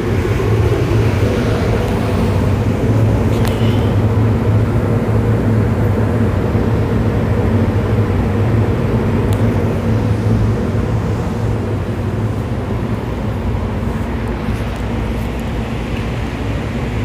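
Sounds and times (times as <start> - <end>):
city traffic drone: 0.0 - 17.0.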